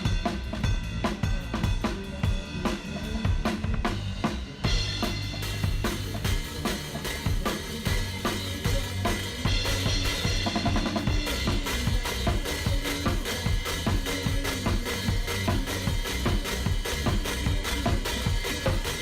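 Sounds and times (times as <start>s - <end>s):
backing track with bass: 0.0s - 19.0s
drum kit hits: 3.2s - 19.0s.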